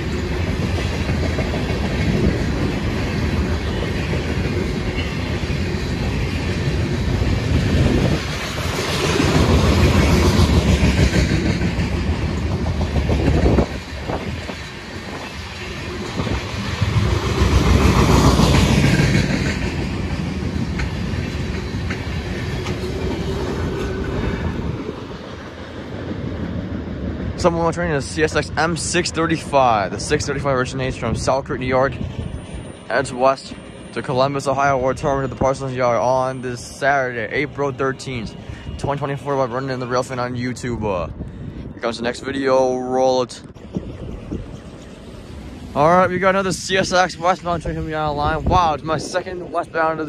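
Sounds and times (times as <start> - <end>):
train wheels clattering over rails: 0.0 - 27.5.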